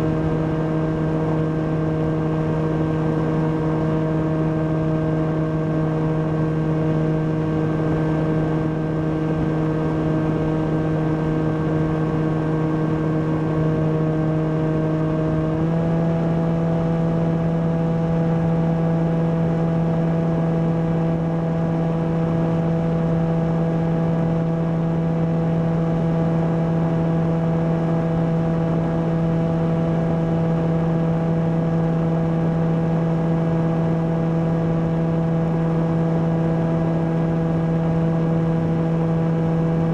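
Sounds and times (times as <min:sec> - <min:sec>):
electric motor and propeller humming: 0:21.9 - 0:39.9.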